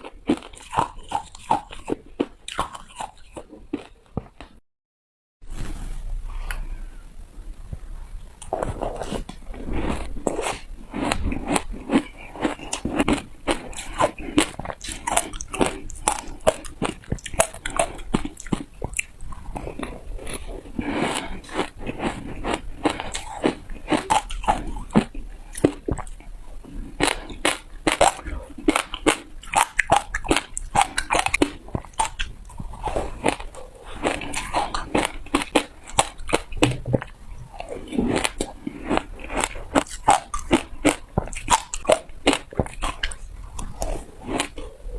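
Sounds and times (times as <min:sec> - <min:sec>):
ice crunched between teeth: 0:09.9 - 0:26.2, 0:27.0 - 0:44.6.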